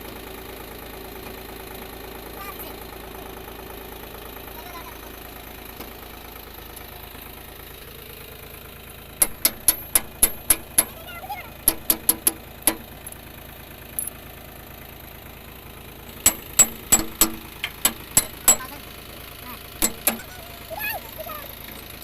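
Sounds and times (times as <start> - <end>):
tractor engine idling: 0.0 - 22.0
metal-on-metal clanks: 16.1 - 18.7, 19.8 - 20.3.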